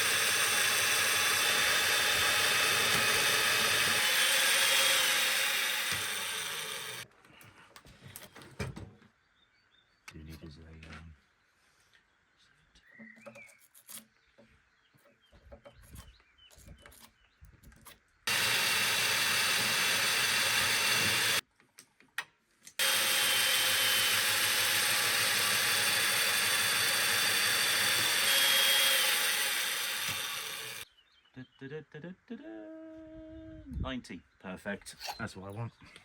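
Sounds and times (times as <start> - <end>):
power tool cutting timber: 0.0 - 7.0, 18.3 - 21.4, 22.8 - 30.8.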